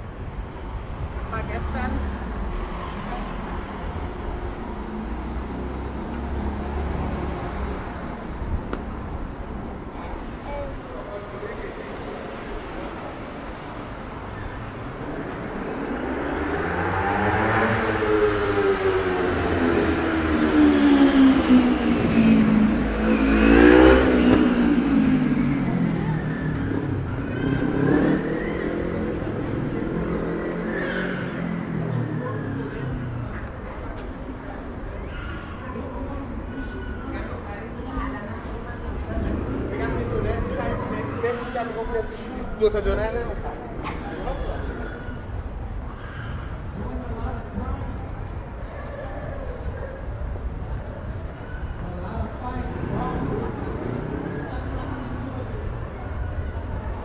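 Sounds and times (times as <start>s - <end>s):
road traffic rumble: 0.0s - 57.0s
car accelerating past: 11.8s - 33.5s.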